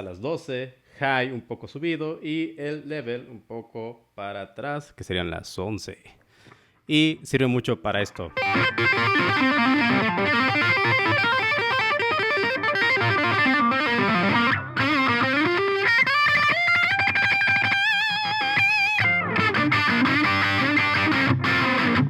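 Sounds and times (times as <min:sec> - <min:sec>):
distorted electric guitar solo: 0:08.3 - 0:22.0.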